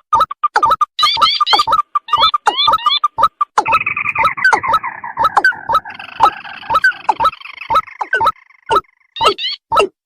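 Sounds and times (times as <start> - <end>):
buzzy bird call: 1.0 - 9.6
short croaking bird notes: 3.0 - 9.7.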